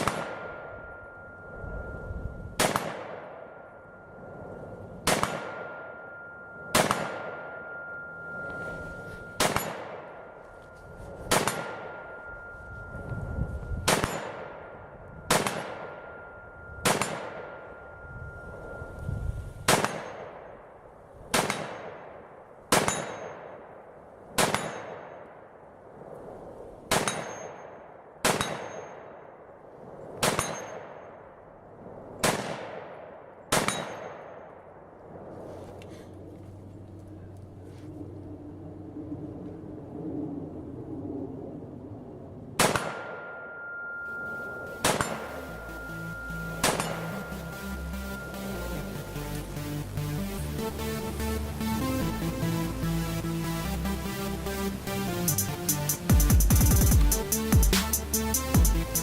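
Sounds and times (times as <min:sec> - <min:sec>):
rifle shots: 0:00.0 - 0:00.8, 0:02.6 - 0:03.6, 0:05.0 - 0:06.0, 0:06.7 - 0:07.6, 0:09.4 - 0:10.4, 0:11.3 - 0:12.1, 0:13.8 - 0:16.2, 0:16.8 - 0:17.7, 0:19.7 - 0:20.6, 0:21.3 - 0:23.8, 0:24.4 - 0:25.2, 0:26.9 - 0:29.1, 0:30.2 - 0:31.3, 0:32.2 - 0:34.6, 0:42.6 - 0:43.3, 0:44.6 - 0:45.6.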